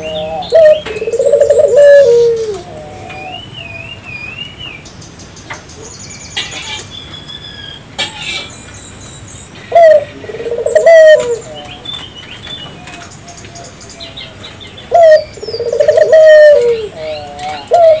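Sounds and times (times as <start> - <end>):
dove cooing: 0.0 - 3.5, 9.7 - 11.8, 14.9 - 18.0
small birds chirping: 0.0 - 18.0.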